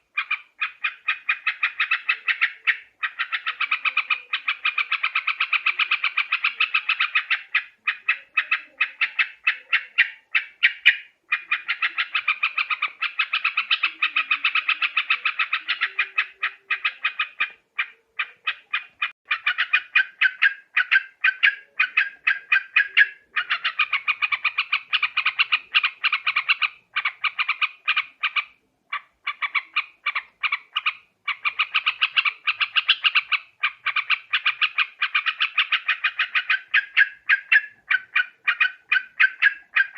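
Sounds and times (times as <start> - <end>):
bird chattering calls: 0.0 - 39.9.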